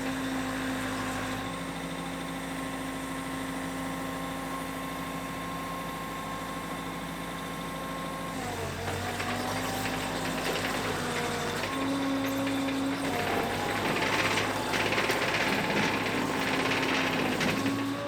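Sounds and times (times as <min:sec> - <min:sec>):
machine rattling and clatter: 0:08.9 - 0:18.0
piling rig engine running: 0:08.9 - 0:18.0.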